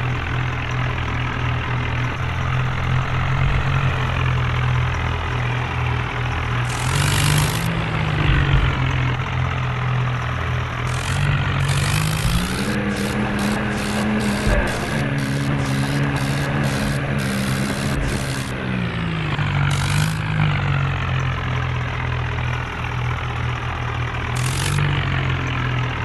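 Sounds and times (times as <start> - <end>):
tractor diesel engine running: 0.0 - 26.0
short hiss bursts: 11.7 - 18.5.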